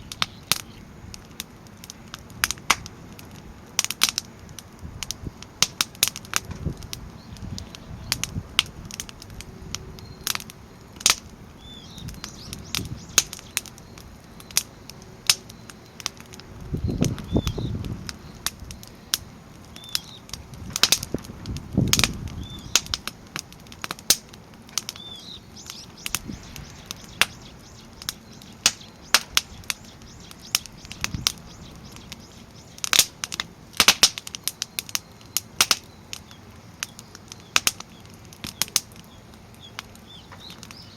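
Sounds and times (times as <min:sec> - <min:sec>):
firewood crackling and popping: 0:00.0 - 0:40.9
low rushing swells: 0:25.9 - 0:32.2.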